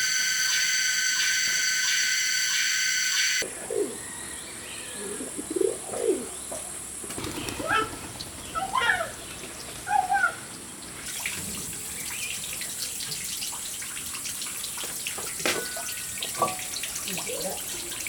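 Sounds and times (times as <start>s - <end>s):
water running: 11.0s - 18.0s.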